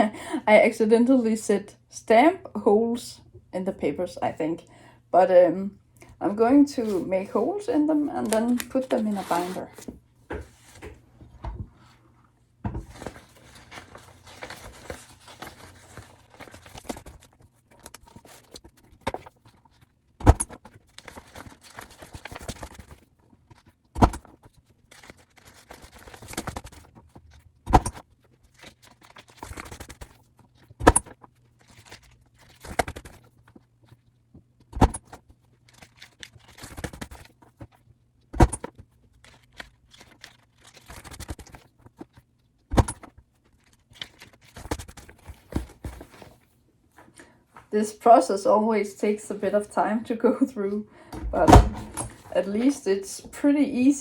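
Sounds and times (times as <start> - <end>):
paper rustling: 8.0 - 11.0, 12.8 - 19.9, 20.6 - 34.1, 34.8 - 37.9, 38.6 - 46.6, 51.3 - 52.9.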